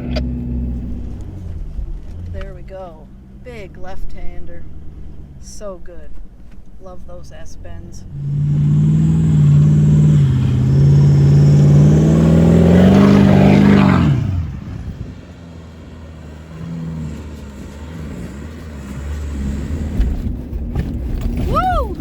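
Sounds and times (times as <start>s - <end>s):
vehicle engine revving under load: 0.0s - 5.7s, 8.0s - 21.4s.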